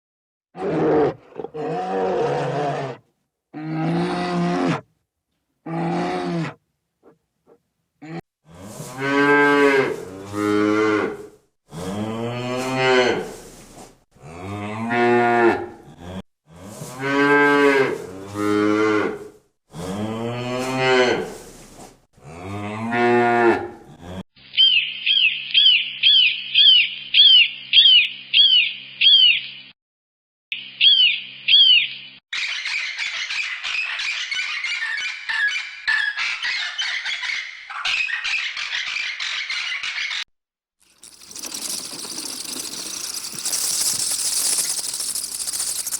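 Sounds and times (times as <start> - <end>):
rapid high chirps: 40.9 - 45.9.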